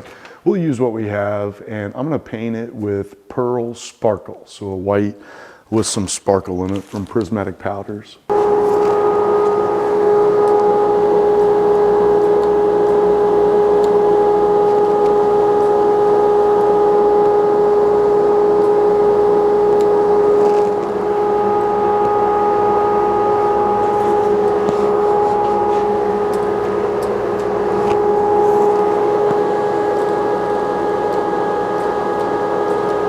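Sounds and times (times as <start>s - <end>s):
steady mechanical drone: 8.3s - 33.0s.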